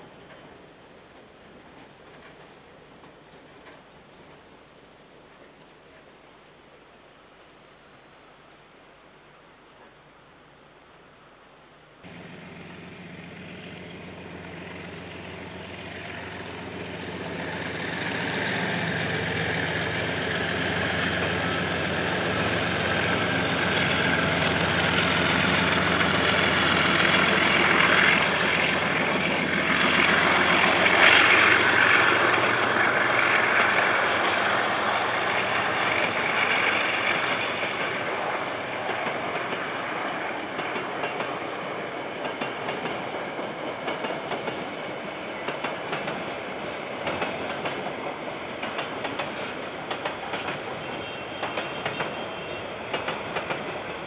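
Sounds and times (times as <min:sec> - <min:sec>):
train wheels on rails: 0:00.0 - 0:04.6, 0:12.0 - 0:54.0
diesel locomotive engine: 0:12.0 - 0:54.0.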